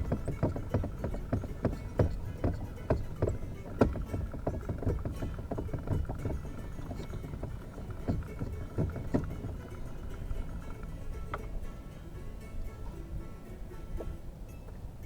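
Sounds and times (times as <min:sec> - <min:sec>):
waves lapping against boat hull: 0:00.0 - 0:11.6.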